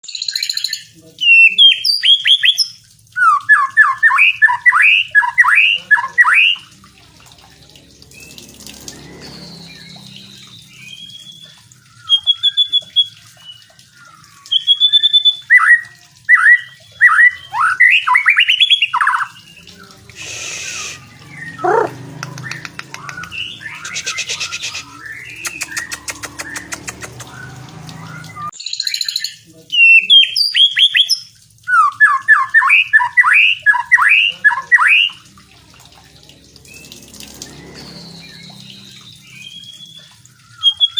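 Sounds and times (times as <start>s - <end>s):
bird singing whistled notes: 9.0s - 19.7s, 20.6s - 35.2s, 36.7s - 40.9s
soft bird calls: 9.3s - 28.6s.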